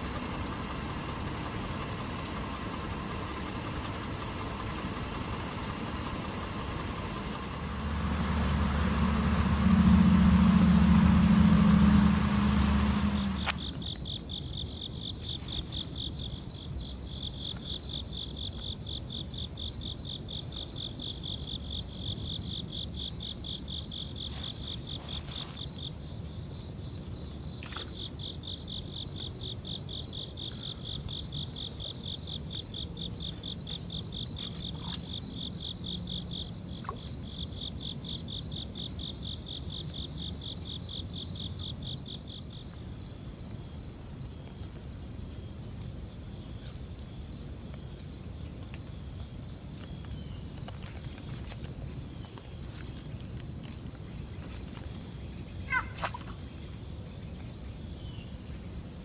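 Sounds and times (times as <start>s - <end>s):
insect fast-pulsing high trill: 0.0s - 14.0s
insects buzzing high-pitched: 0.0s - 14.1s
low rumble: 5.7s - 13.8s.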